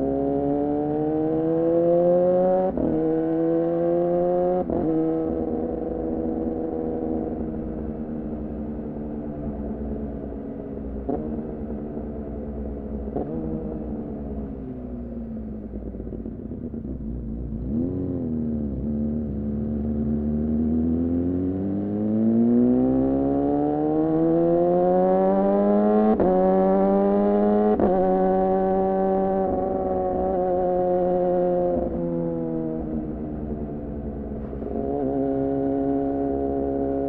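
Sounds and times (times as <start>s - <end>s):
motorcycle engine revving: 0.0s - 10.3s, 10.9s - 37.0s.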